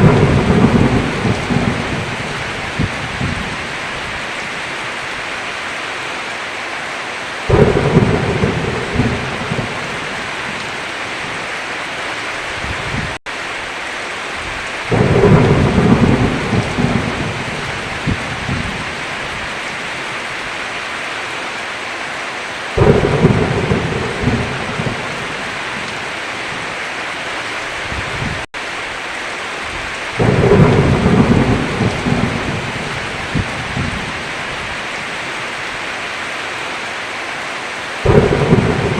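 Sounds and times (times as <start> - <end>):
thunder rumbling: 0.0 - 4.4, 7.5 - 11.4, 14.4 - 20.0, 22.8 - 26.7, 29.7 - 34.8, 38.0 - 38.9
heavy rain: 0.0 - 38.9.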